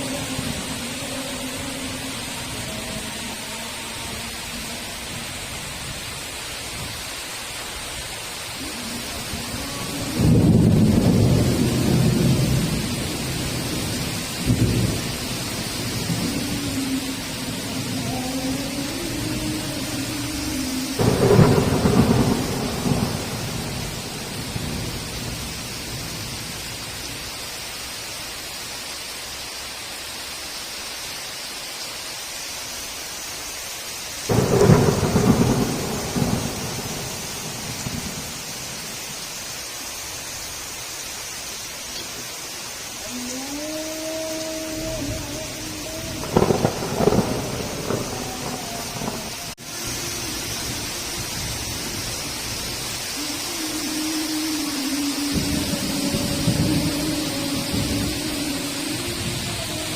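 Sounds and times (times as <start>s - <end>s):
heavy rain hissing: 0.0s - 59.9s
thunder rumbling: 8.5s - 27.1s, 34.3s - 39.5s, 43.8s - 59.9s.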